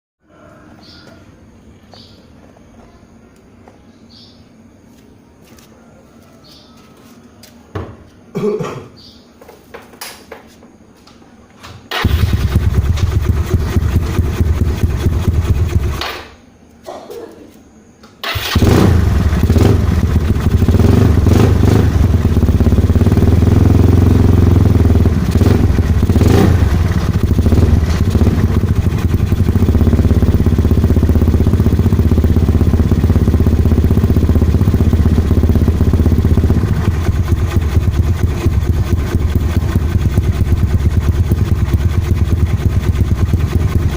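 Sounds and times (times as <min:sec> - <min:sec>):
scooter engine running: 0:11.9 - 0:16.1, 0:18.2 - 0:43.9.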